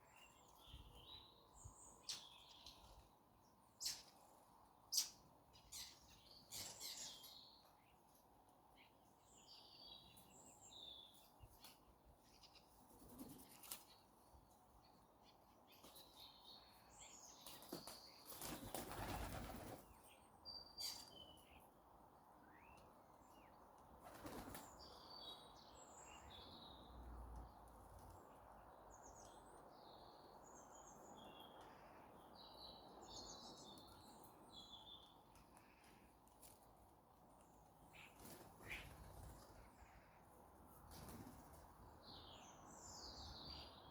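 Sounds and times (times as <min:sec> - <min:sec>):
bird wings flapping: 0:17.6 - 0:19.9, 0:24.0 - 0:24.6.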